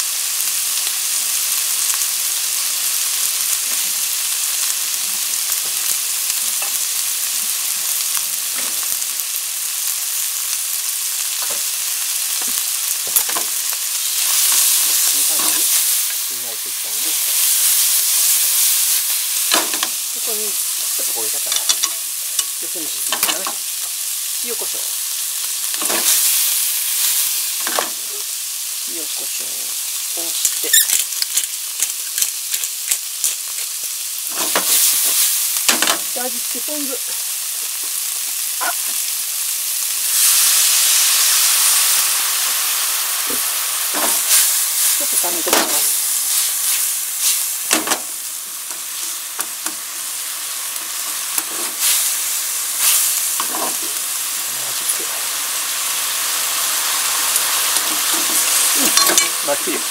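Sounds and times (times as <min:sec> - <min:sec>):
food sizzling in a wok: 0:00.0 - 0:59.9
chopsticks scraping a pan: 0:14.1 - 0:16.3, 0:20.8 - 0:23.6, 0:30.4 - 0:36.0, 0:50.8 - 0:54.0, 0:57.4 - 0:59.9.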